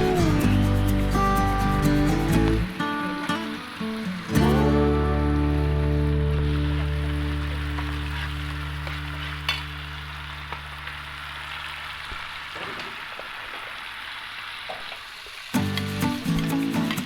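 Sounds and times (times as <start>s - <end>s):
low held music tone: 0.0s - 2.8s, 4.2s - 11.6s
hot oil sizzling: 0.0s - 17.0s.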